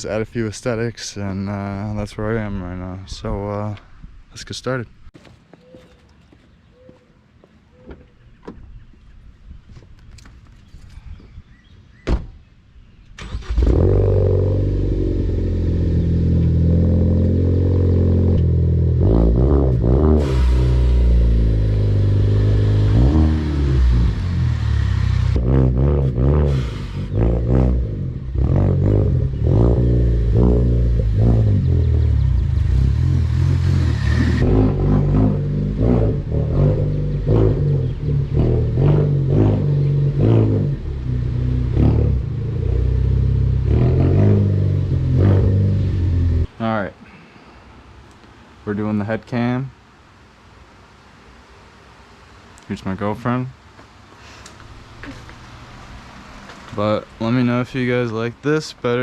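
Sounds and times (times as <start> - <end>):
car engine starting and revving: 13.2 - 46.5.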